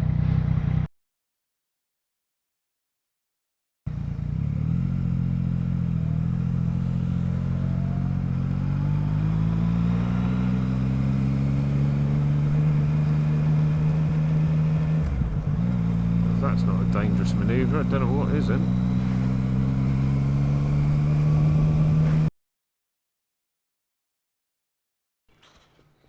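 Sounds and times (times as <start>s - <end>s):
motorcycle engine accelerating: 0.0s - 0.9s, 3.9s - 22.3s.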